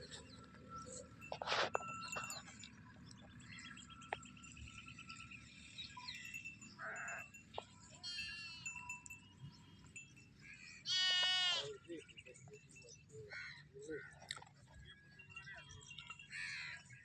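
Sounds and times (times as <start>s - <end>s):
small birds chirping: 0.0s - 13.2s, 14.2s - 17.0s
rustling or scraping noise: 1.2s - 2.6s.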